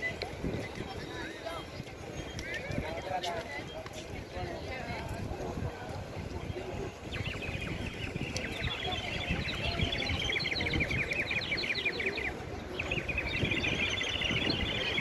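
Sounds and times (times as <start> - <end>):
birds chirping: 6.2 - 15.0.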